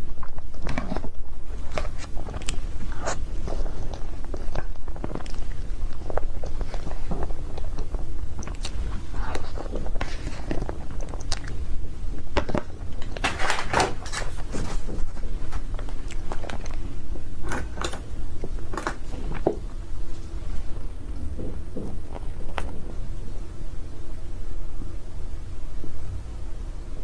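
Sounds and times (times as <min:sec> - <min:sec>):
chewing and biting cake: 0:00.0 - 0:22.9
mouth clicks and smacks: 0:01.8 - 0:11.6.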